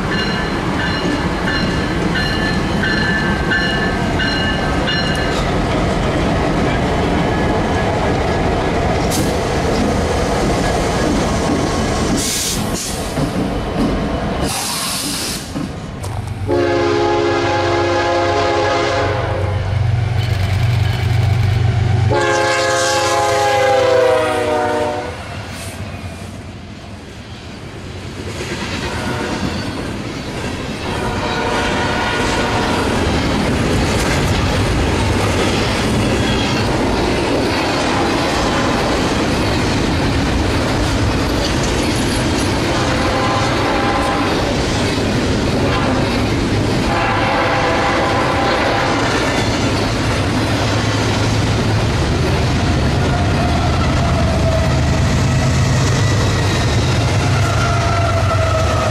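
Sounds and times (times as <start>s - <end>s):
locomotive engine hum: 15.8s - 28.2s
locomotive horn blasts: 16.5s - 19.7s, 22.1s - 25.2s, 28.9s - 29.5s, 30.8s - 32.8s, 42.8s - 44.4s, 46.9s - 49.2s.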